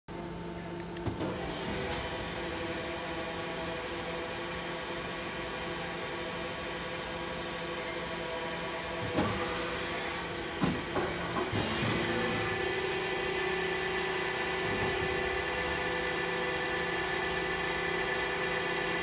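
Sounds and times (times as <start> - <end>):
machine tool humming and whining: 1.0 - 19.0.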